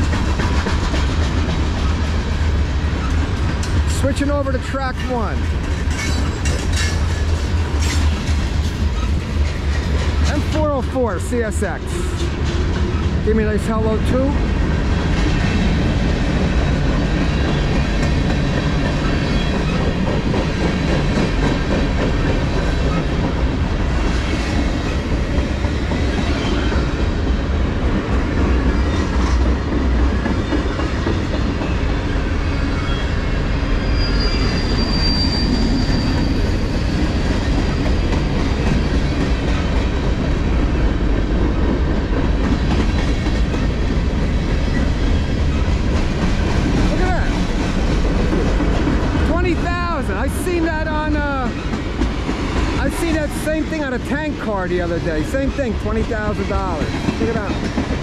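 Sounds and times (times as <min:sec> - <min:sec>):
steel wheels rumbling on rail: 0:00.0 - 0:58.0
high-pitched wheel squeal: 0:32.5 - 0:37.0.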